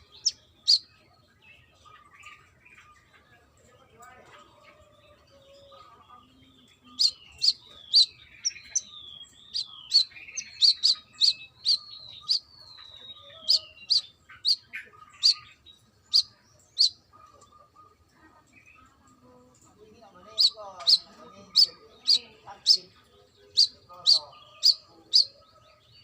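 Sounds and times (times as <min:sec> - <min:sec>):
bird singing high chips: 0:06.9 - 0:17.0, 0:20.2 - 0:22.9, 0:23.5 - 0:25.3.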